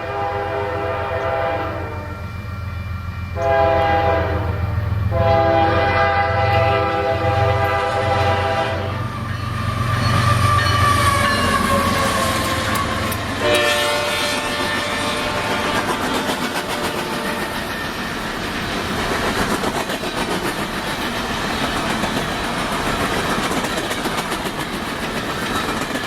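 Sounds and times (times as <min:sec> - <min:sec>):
locomotive air horn blasts: 0:00.0 - 0:02.4, 0:03.4 - 0:09.2, 0:10.2 - 0:17.6
falling whine: 0:00.0 - 0:06.0
freight train rumbling: 0:00.0 - 0:26.0.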